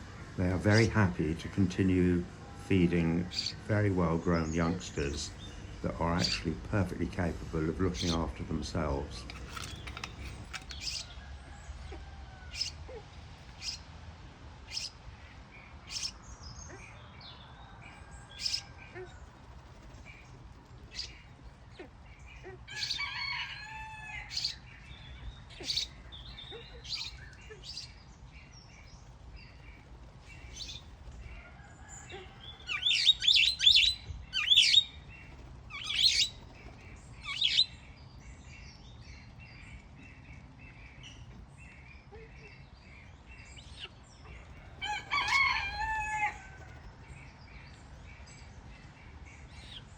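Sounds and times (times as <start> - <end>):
swamphens loud harsh calls: 2.3 - 6.6, 11.9 - 13.8, 14.7 - 17.0, 18.3 - 19.2, 20.9 - 24.7, 25.5 - 27.9, 31.9 - 36.6, 37.2 - 37.7, 44.8 - 46.6.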